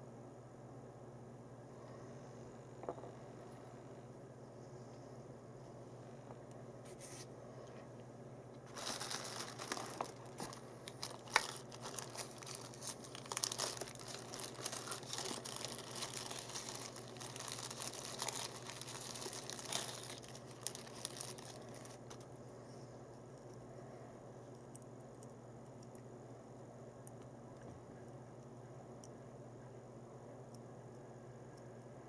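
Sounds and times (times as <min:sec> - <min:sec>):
packaging crinkling and rustling: 0:08.6 - 0:22.3.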